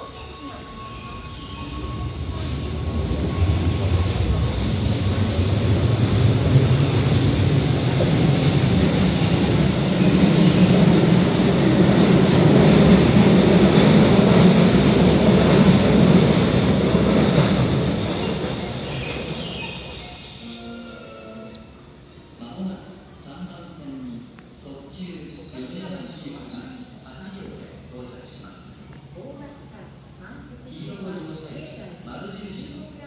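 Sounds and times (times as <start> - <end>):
electric train rumbling: 0.0 - 22.4.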